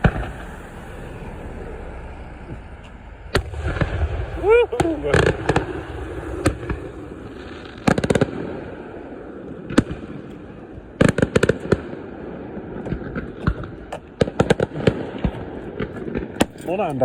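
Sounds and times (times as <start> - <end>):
steady low rumble: 0.0 - 16.4
fireworks cracking: 0.0 - 17.0.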